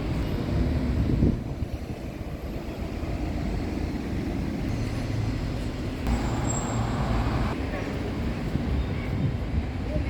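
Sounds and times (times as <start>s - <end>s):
train rumbling: 1.9s - 7.6s.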